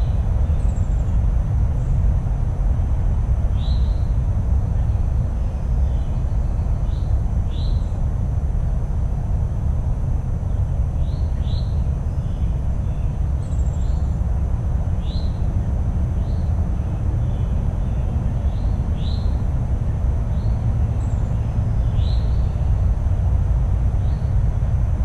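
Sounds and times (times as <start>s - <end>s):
low background rumble: 0.0s - 25.0s
small birds chirping: 16.2s - 22.8s.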